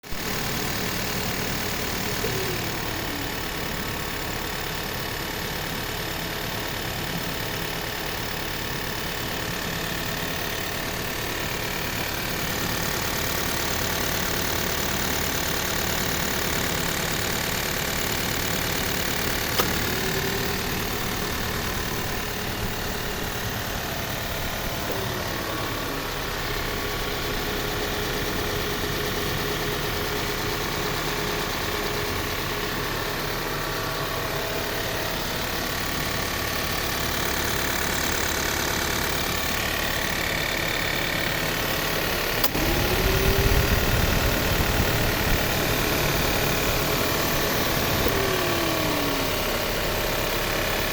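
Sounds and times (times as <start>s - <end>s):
car engine idling: 0.0s - 50.9s
tapping noise from engine bay: 19.4s - 20.1s.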